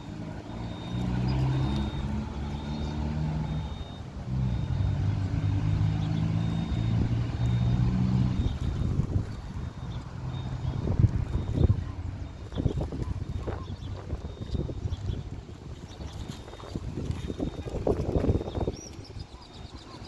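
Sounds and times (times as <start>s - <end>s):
engine humming: 0.0s - 20.0s
short high-pitched beep: 0.5s - 4.9s, 9.8s - 14.9s.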